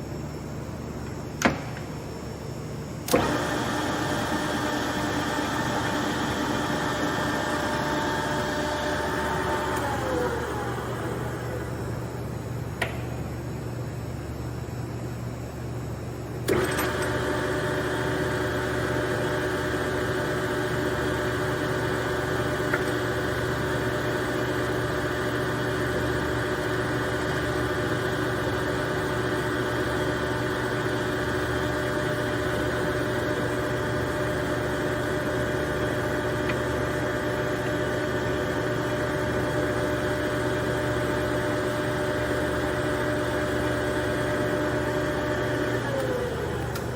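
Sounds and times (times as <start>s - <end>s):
machine starting with a jolt: 3.1s - 4.7s, 16.5s - 17.3s
lathe running: 3.1s - 12.4s, 16.5s - 46.9s.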